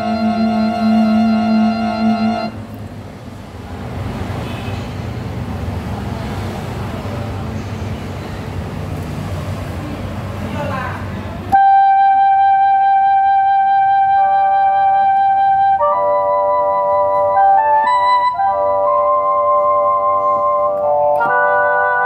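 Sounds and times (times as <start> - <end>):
keyboard playing wind-instrument voice: 0.0 - 2.7, 11.6 - 22.0.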